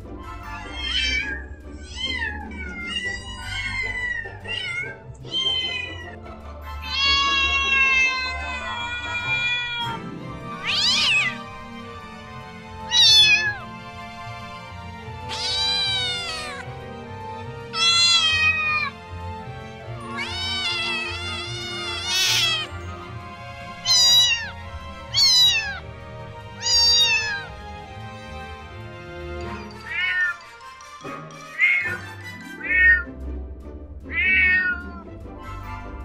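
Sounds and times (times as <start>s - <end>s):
background music: 0.0s - 36.0s
cats meowing: 0.6s - 6.2s, 6.8s - 11.5s, 12.8s - 13.8s, 15.2s - 16.7s, 17.6s - 19.1s, 20.0s - 22.9s, 23.7s - 27.6s, 29.6s - 30.5s, 31.6s - 32.0s, 32.6s - 33.1s, 34.1s - 35.0s.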